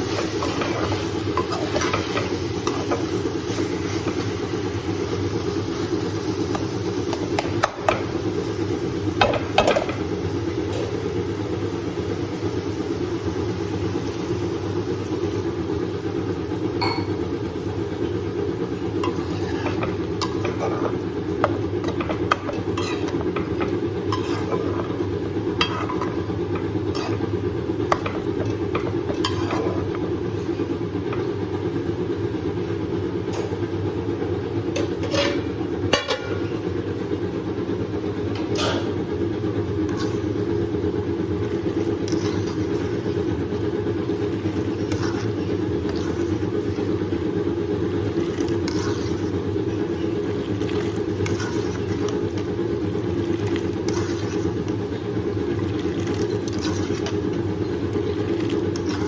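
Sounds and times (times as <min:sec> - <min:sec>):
steady low hum: 0:00.0 - 0:59.0
utensil scraping cooking pot: 0:18.0 - 0:30.1, 0:39.5 - 0:59.0.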